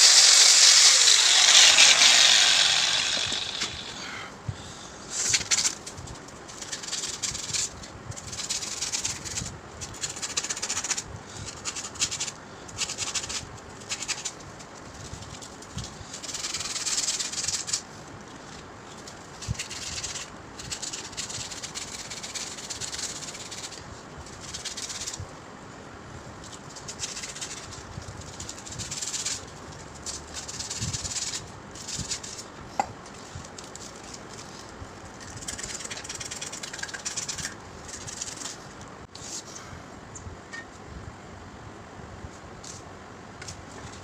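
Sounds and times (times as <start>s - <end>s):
scratchy rubbing strokes: 0.0s - 4.2s, 33.2s - 39.5s.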